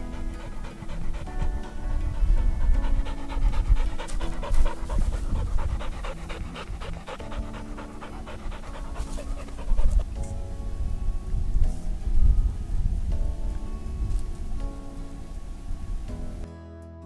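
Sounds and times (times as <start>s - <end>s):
dog panting: 0.0s - 10.4s
background music: 0.0s - 17.0s.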